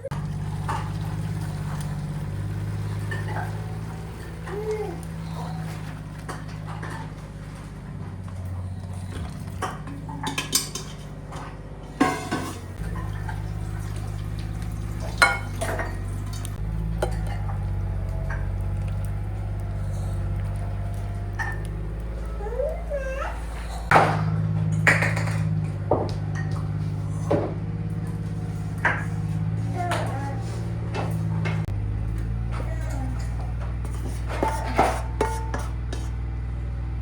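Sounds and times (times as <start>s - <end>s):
low engine drone: 0.0s - 37.0s
dishes and cutlery clinking: 0.5s - 19.3s, 32.5s - 36.2s.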